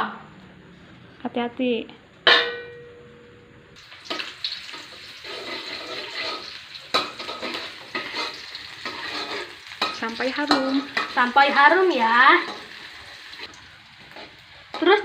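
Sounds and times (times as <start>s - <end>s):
sharp metallic clang: 2.2s - 3.2s
shallots sizzling in hot oil: 3.8s - 15.0s
utensil stirring in pan: 3.8s - 15.0s.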